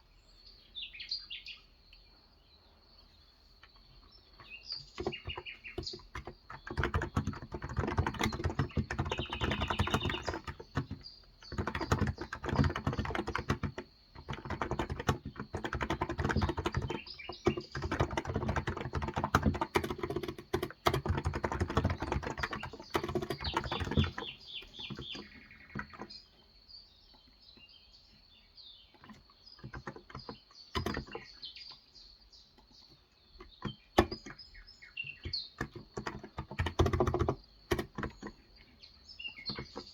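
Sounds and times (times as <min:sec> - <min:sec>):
birds chirping: 0:00.0 - 0:39.9
typing on keyboard: 0:04.4 - 0:26.2, 0:28.9 - 0:31.3, 0:33.4 - 0:38.6, 0:39.3 - 0:39.9.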